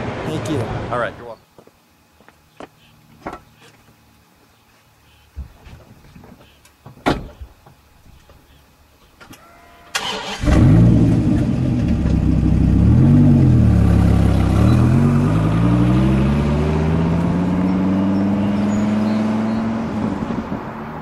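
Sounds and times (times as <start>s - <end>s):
car engine starting and revving: 10.0s - 21.0s.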